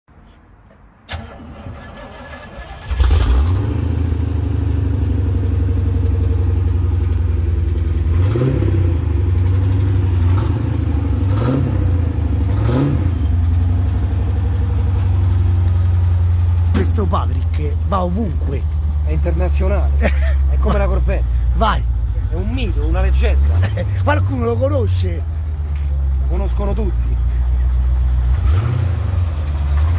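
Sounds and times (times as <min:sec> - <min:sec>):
car engine idling: 0:02.7 - 0:29.9.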